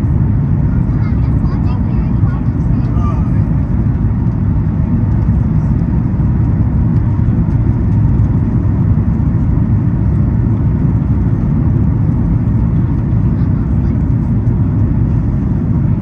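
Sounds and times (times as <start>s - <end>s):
airliner cabin engine rumble: 0.0s - 16.0s.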